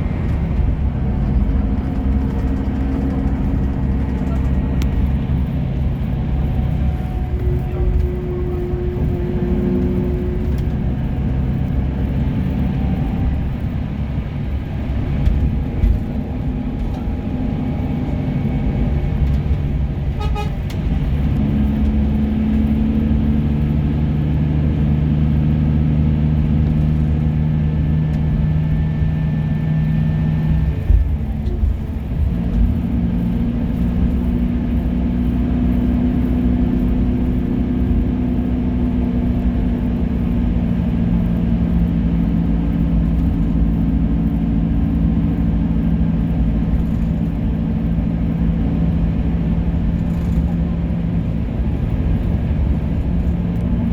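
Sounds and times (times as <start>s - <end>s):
diesel bus engine: 0.0s - 53.9s.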